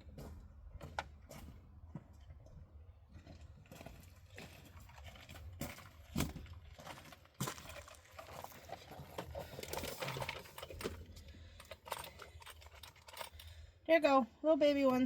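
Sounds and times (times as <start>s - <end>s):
tools and small parts handled: 4.7s - 13.6s.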